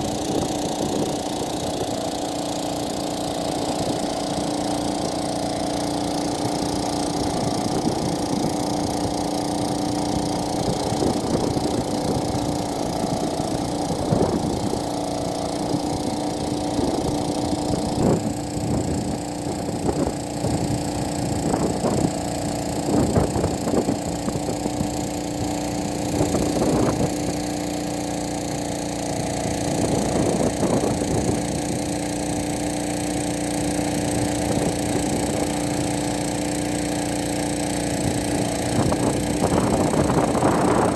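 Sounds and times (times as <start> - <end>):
drone rotors humming: 0.0 - 40.9.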